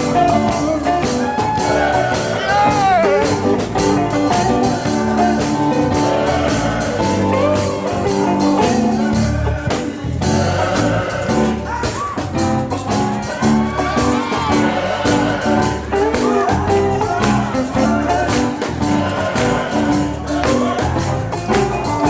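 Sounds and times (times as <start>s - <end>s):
person singing: 0.0s - 12.3s
drum beat: 0.0s - 22.0s
electric guitar: 0.0s - 22.0s.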